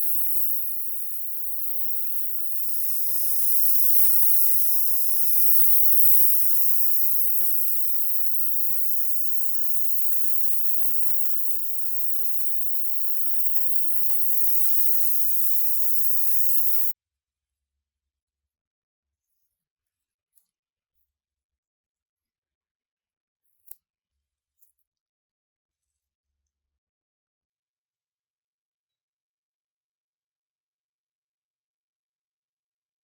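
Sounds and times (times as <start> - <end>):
paint spraying hiss: 0.0 - 16.9.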